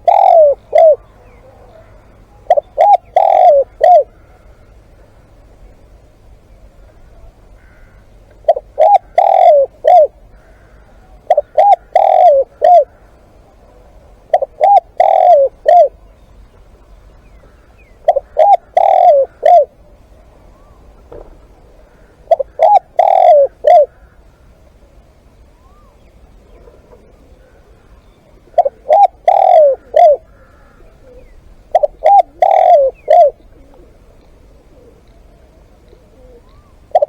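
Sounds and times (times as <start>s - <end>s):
dove cooing: 0.0s - 37.0s.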